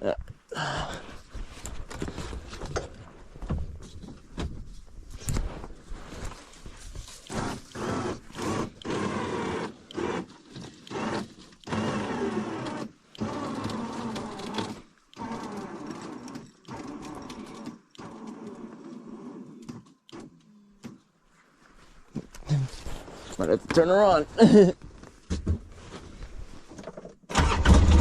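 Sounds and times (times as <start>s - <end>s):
hand tools creaking and clicking: 6.9s - 21.1s.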